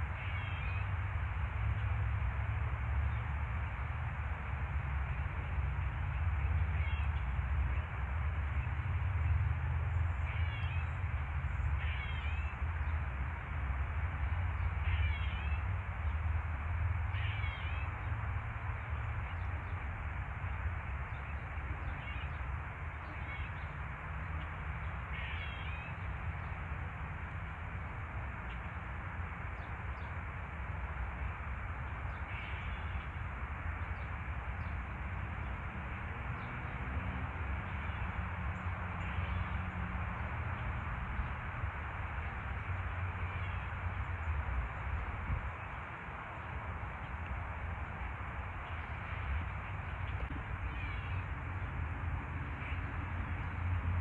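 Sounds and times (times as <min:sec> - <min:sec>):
background rush and low rumble: 0:00.0 - 0:54.0.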